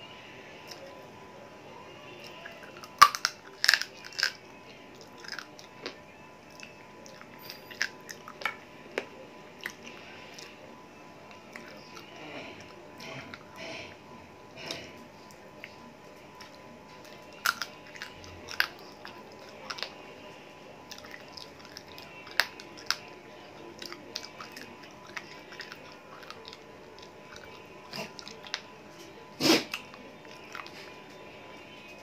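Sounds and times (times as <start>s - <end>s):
person chewing with crunches: 2.3s - 10.6s, 16.4s - 20.0s, 20.8s - 28.7s.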